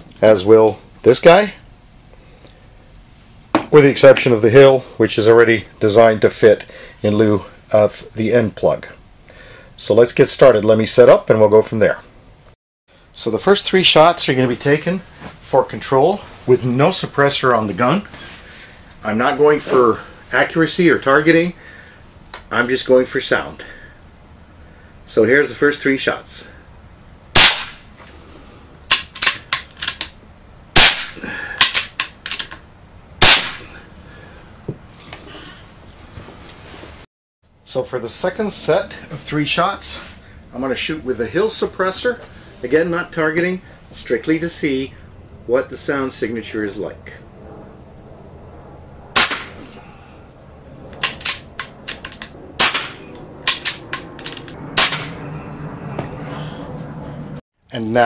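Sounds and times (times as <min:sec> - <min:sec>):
air pistol shots: 0:27.4 - 0:27.9, 0:30.8 - 0:32.2, 0:33.2 - 0:33.8, 0:49.2 - 0:49.6, 0:52.6 - 0:54.0, 0:54.8 - 0:55.2.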